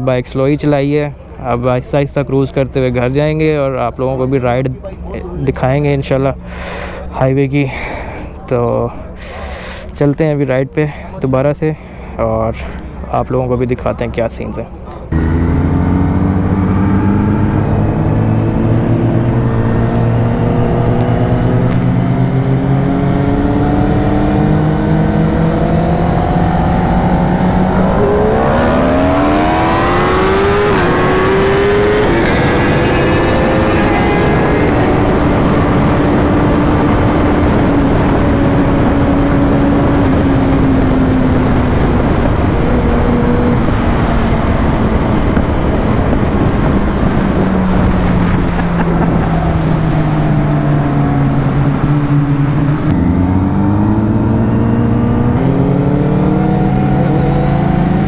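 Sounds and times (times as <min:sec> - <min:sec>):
motorcycle engine accelerating: 0:15.1 - 0:58.0
wind noise on microphone: 0:16.1 - 0:58.0.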